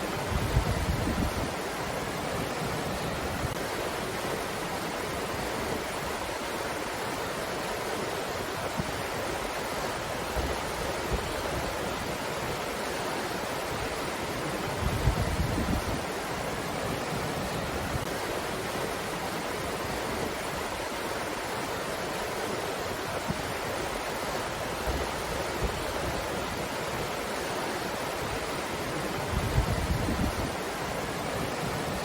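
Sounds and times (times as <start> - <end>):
wind gusts buffeting microphone: 0.1 - 3.6, 14.6 - 18.1, 28.2 - 32.0.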